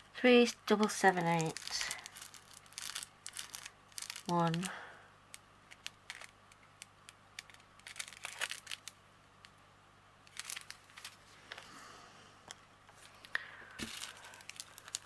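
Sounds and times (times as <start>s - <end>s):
plastic bags crinkling: 0.7s - 4.9s, 5.7s - 9.0s, 10.3s - 11.7s, 13.0s - 15.0s.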